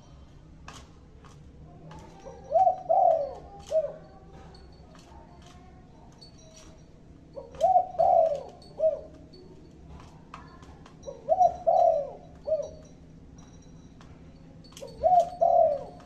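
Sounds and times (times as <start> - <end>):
dove cooing: 1.9 - 4.6, 7.2 - 13.1, 14.7 - 16.0.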